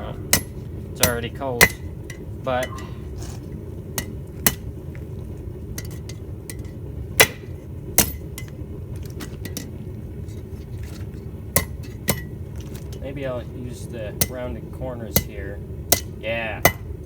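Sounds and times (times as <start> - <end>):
steady low rumble: 0.0 - 17.0
hammer striking metal on anvil: 0.3 - 3.0, 5.8 - 8.5, 11.6 - 12.3, 15.2 - 16.9.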